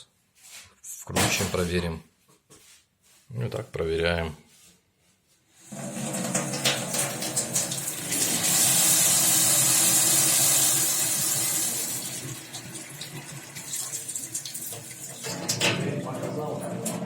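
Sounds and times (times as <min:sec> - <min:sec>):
water running from a tap: 0:05.7 - 0:17.0.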